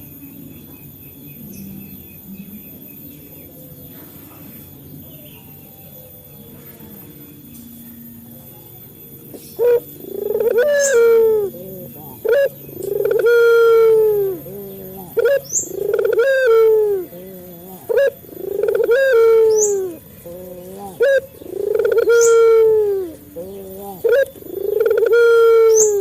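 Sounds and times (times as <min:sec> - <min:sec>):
dove cooing: 0:08.2 - 0:26.0.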